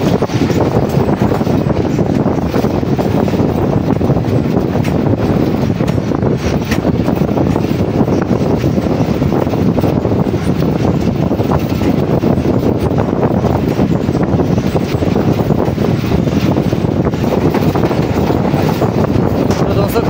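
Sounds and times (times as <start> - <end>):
wheels rumbling on rails: 0.0 - 20.0
wind: 0.0 - 20.0.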